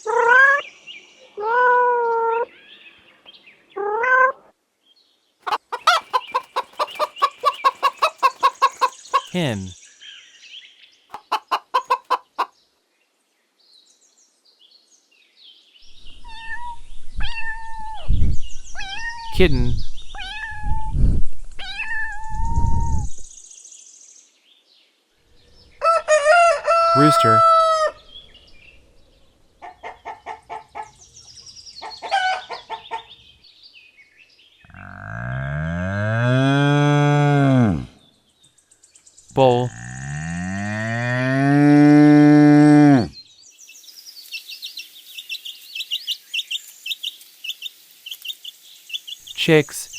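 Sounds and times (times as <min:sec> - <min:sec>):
hen clucking: 0:05.4 - 0:09.7, 0:11.1 - 0:12.5.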